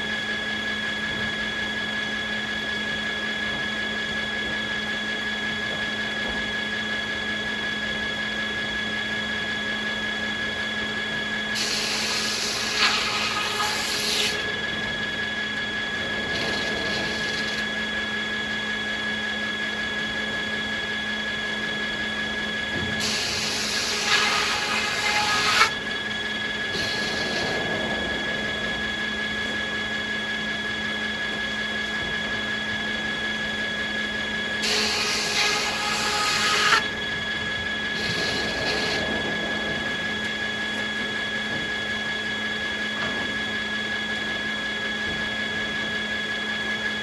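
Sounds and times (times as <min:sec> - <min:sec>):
sawmill saws humming: 0:00.0 - 0:47.0
saw rasping through wood: 0:11.6 - 0:14.6, 0:16.2 - 0:17.7, 0:22.9 - 0:25.8, 0:26.6 - 0:27.6, 0:34.6 - 0:36.9, 0:37.9 - 0:39.0.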